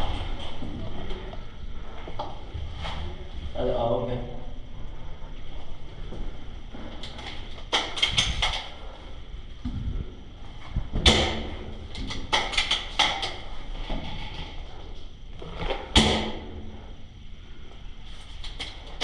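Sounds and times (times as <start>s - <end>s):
airsoft gun firing: 16.0s - 16.6s.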